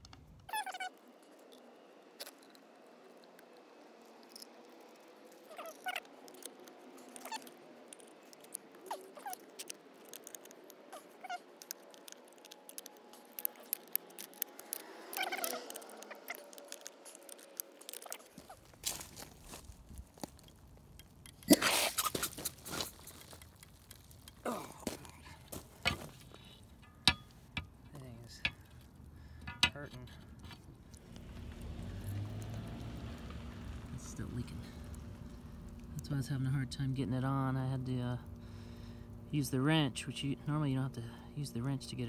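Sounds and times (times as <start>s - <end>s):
hand tools clicking: 4.1s - 18.8s, 20.4s - 30.7s.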